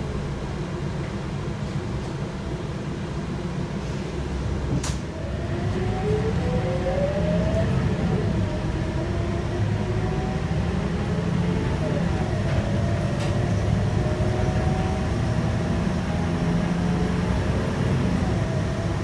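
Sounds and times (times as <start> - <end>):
bus engine rumbling: 0.0 - 19.0.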